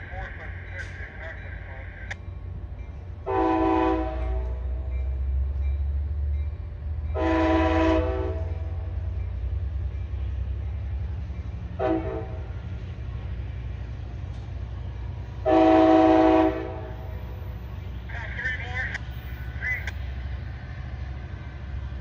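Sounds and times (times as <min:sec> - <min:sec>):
low diesel rumble: 0:00.0 - 0:22.0
train air horn blasts: 0:03.2 - 0:04.7, 0:07.1 - 0:08.7, 0:11.8 - 0:12.6, 0:15.4 - 0:17.0.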